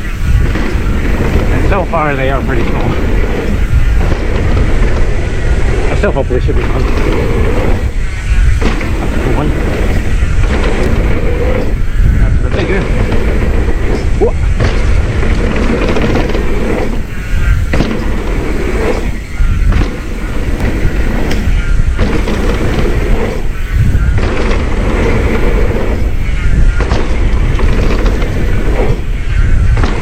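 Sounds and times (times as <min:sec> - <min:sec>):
bike tyres rumbling and rattling: 0:00.0 - 0:30.0
wind buffeting microphone: 0:00.0 - 0:30.0.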